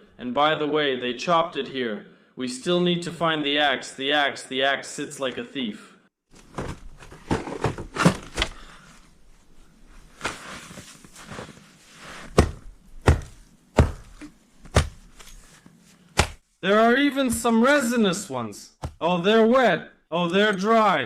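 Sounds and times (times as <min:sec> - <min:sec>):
rustling: 0:06.3 - 0:16.5.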